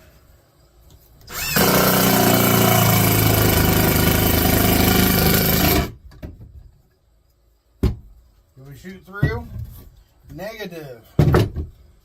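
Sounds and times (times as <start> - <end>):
screw gun motor whining: 1.3 - 5.9.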